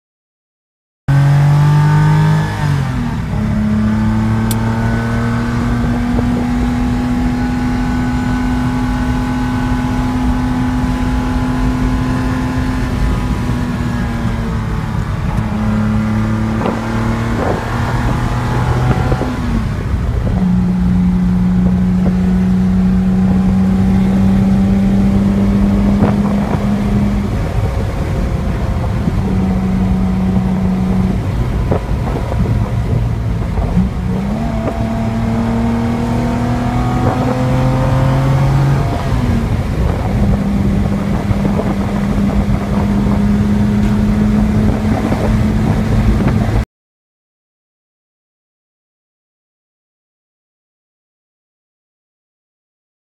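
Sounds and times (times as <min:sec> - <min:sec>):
car engine driving: 0:01.1 - 0:46.6
road and wind noise: 0:01.1 - 0:46.7.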